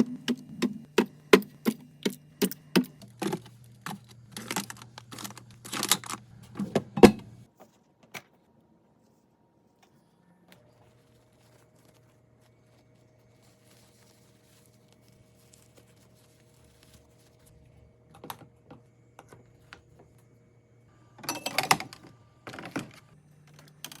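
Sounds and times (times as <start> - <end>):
food containers clicking and clattering: 0.0 - 7.5
faint steady hum: 0.0 - 24.0.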